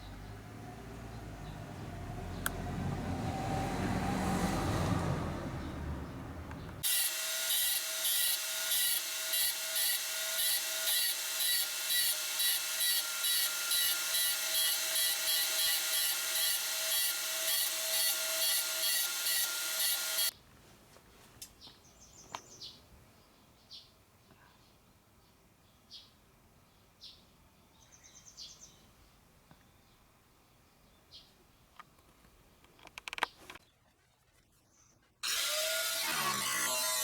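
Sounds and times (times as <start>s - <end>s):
electric power tool whining: 6.5s - 20.3s, 35.2s - 37.0s.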